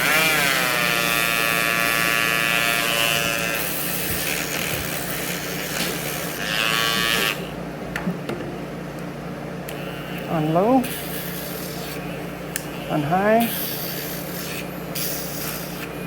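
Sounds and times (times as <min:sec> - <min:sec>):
grinder grinding dog's nail: 0:00.0 - 0:07.6, 0:09.7 - 0:16.0
nail grinder whining: 0:00.0 - 0:07.6.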